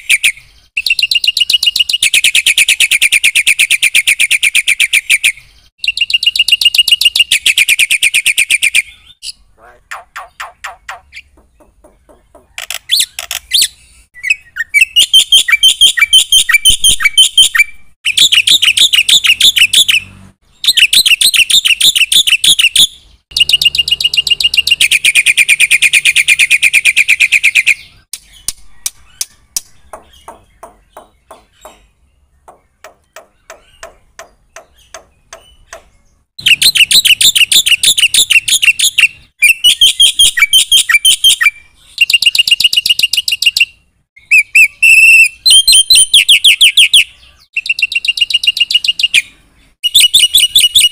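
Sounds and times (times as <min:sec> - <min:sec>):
starling singing: 0:00.0 - 0:50.9
bird clicking notes: 0:32.5 - 0:35.9.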